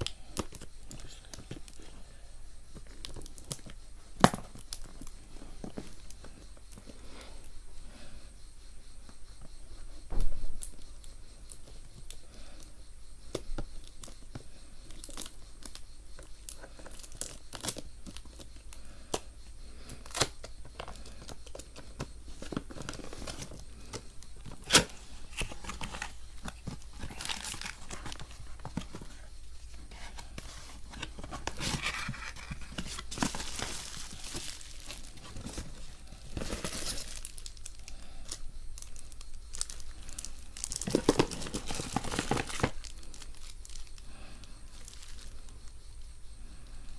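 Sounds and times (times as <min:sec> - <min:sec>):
packaging tearing and crinkling: 0:24.4 - 0:29.1, 0:31.0 - 0:37.9, 0:38.8 - 0:44.0.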